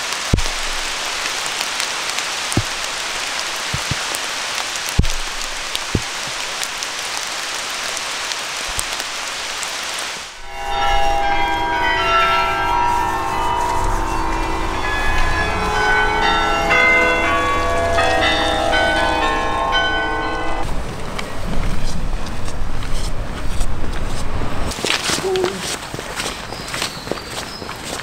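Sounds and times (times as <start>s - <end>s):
steady rain hiss: 0.0s - 25.6s
sustained ringing tones: 10.4s - 20.6s.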